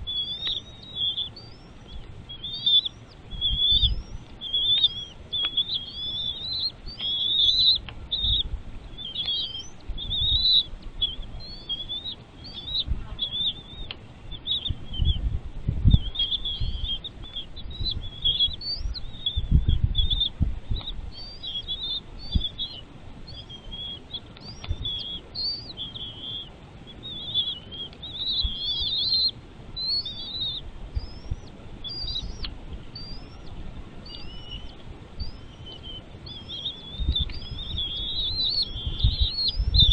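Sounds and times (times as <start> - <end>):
birds chirping: 0.0 - 39.9
low rumbling thumps: 14.6 - 21.3.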